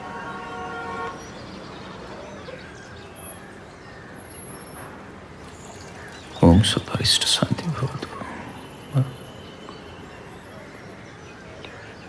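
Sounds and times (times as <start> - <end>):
distant traffic hum: 0.0 - 12.0
faint bird chirps: 5.5 - 12.0.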